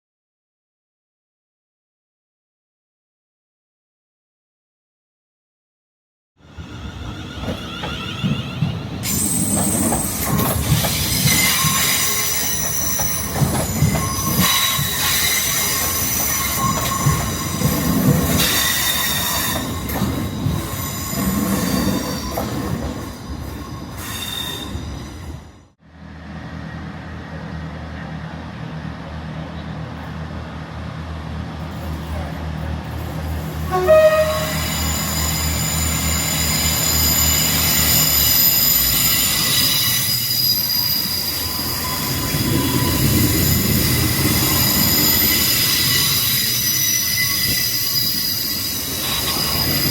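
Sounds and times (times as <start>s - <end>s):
low train hum: 6.4s - 49.9s
train wheel squeal: 6.5s - 25.7s, 31.6s - 49.9s.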